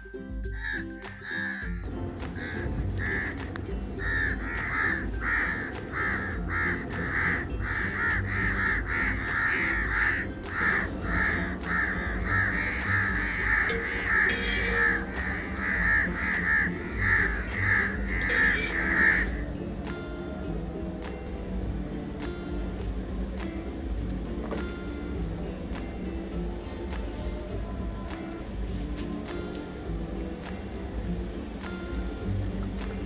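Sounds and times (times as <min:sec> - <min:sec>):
birds harsh calls: 0:00.5 - 0:20.7.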